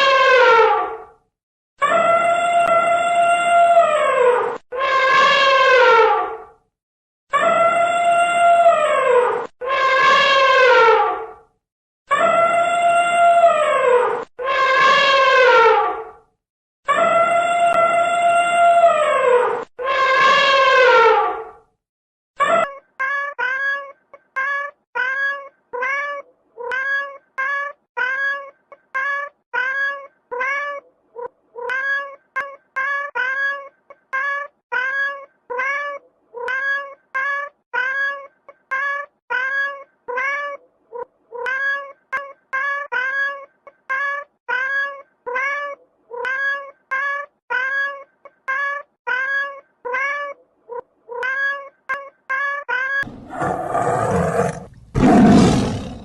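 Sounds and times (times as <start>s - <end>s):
cat meowing: 22.4s - 53.1s.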